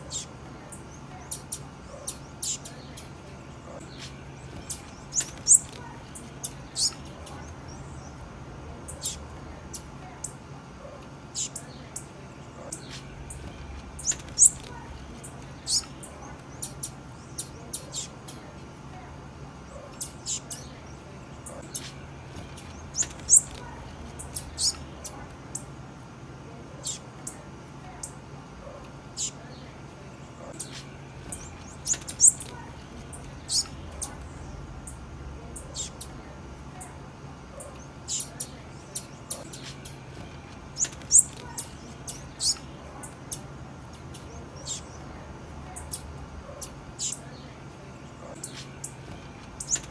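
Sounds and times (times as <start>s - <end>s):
bird chirping sharply: 0.0s - 8.2s, 11.4s - 18.4s
faint low hum: 0.0s - 49.9s
bird giving high chip calls: 30.4s - 34.6s, 37.6s - 40.1s, 40.7s - 43.4s.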